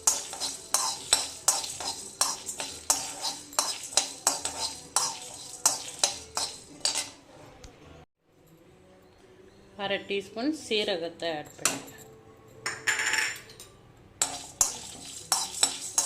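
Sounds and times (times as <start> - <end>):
spatula scraping spices in a pan: 0.0 - 7.3, 14.2 - 16.0.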